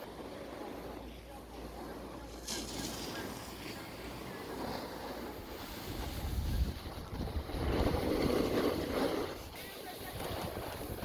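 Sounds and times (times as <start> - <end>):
wind buffeting microphone: 3.1 - 11.0.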